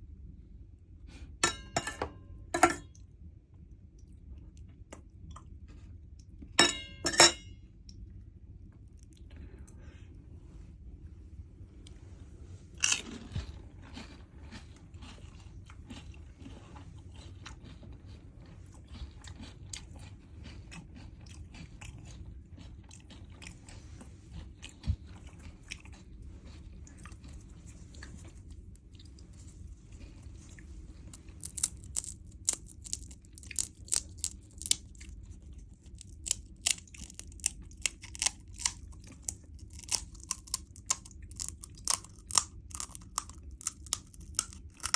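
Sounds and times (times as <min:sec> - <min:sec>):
person chewing crunchy food: 0:11.9 - 0:44.9.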